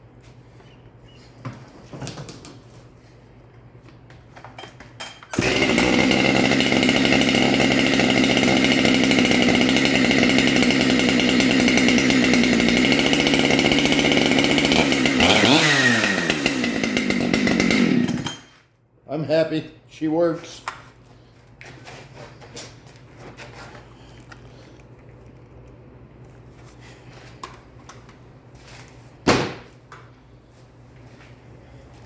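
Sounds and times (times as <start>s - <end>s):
chainsaw pull-start: 5.0s - 18.6s
chainsaw running loud: 5.4s - 18.5s.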